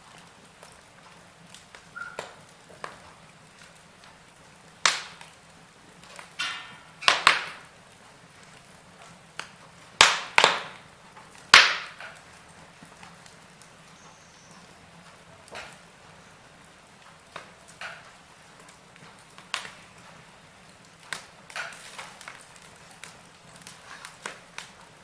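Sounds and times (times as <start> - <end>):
burning wood popping: 0.0 - 25.0
wood fire crackling: 0.0 - 25.0
fire hiss: 15.5 - 25.0.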